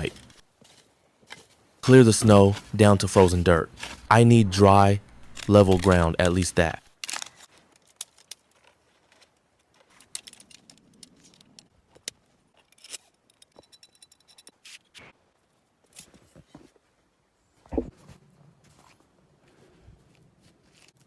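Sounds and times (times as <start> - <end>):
snow scraping and crunching: 0.0 - 6.8.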